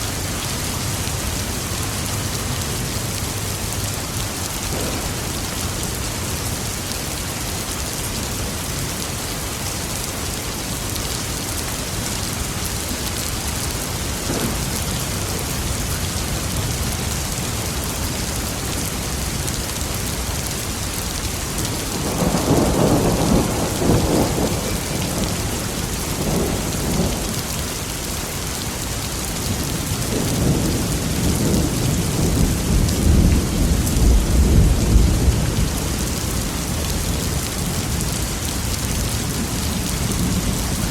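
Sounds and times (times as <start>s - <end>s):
steady rain falling: 0.0s - 40.9s
thunder rumbling: 4.6s - 6.3s, 13.9s - 19.5s, 21.5s - 27.6s, 29.6s - 38.2s.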